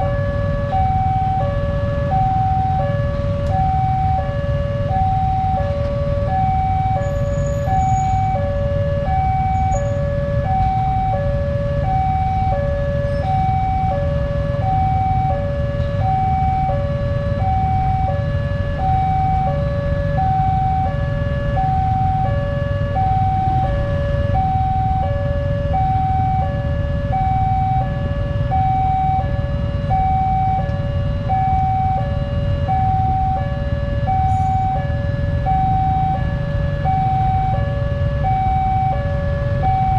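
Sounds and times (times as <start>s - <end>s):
level crossing alarm: 0.0s - 39.9s.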